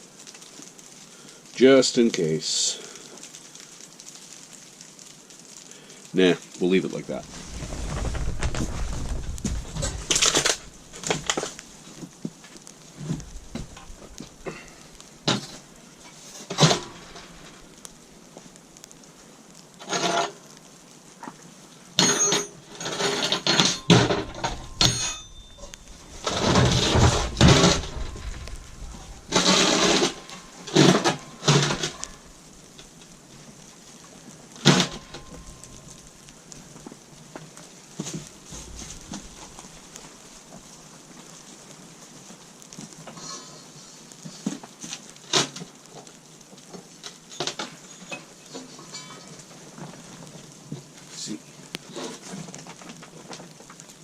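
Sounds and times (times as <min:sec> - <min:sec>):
steel parts clanking and scraping: 0:07.2 - 0:11.6, 0:22.0 - 0:32.3
ringing metallic clinks: 0:22.0 - 0:22.6, 0:23.4 - 0:26.0.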